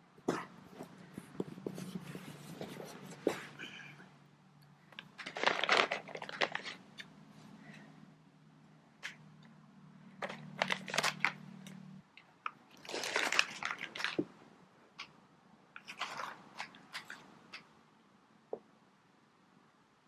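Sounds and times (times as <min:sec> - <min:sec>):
low steady hum: 0:00.0 - 0:20.0
cat crunching dry treats: 0:05.0 - 0:07.1, 0:10.2 - 0:11.4, 0:12.5 - 0:14.3, 0:15.8 - 0:17.6.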